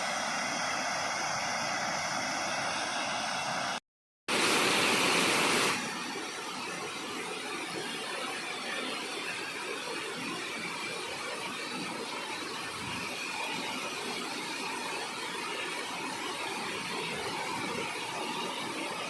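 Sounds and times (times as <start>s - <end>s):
waterfall rushing: 4.3s - 19.0s.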